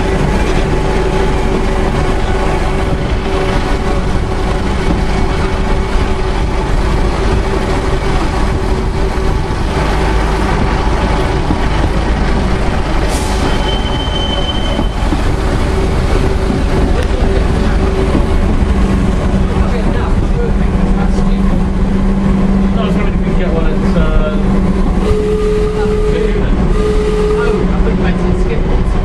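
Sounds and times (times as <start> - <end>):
train wheels rumbling on rail: 0.0 - 29.0
high wheel squeal: 13.1 - 15.3.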